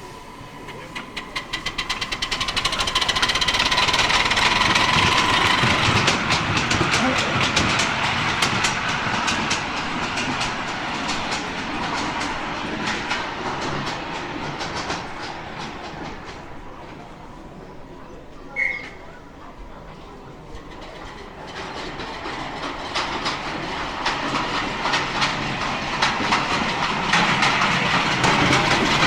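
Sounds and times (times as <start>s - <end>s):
miniature train wheels clicking: 0.0s - 17.2s, 19.6s - 29.0s.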